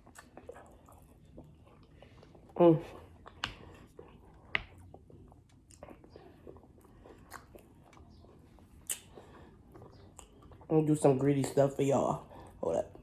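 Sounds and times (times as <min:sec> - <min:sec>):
person chewing food: 0:00.0 - 0:11.6
wet mouth clicks: 0:08.8 - 0:09.2.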